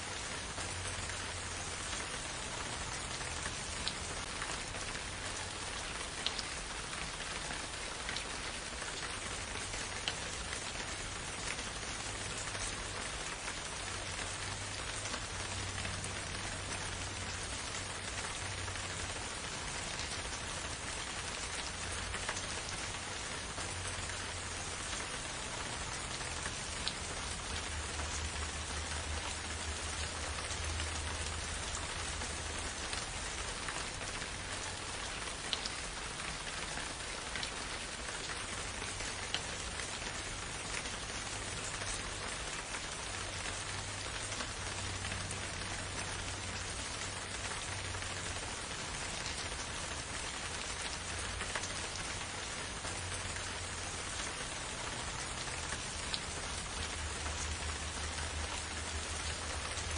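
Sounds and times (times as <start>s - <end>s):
steady rain in a forest: 0.0s - 59.9s.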